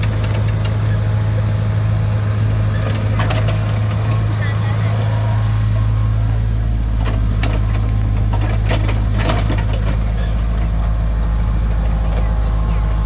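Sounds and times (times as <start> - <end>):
diesel engine running under load: 0.0 - 13.0
high-pitched squeal: 4.8 - 8.4
metallic clanks and knocks: 7.0 - 10.9.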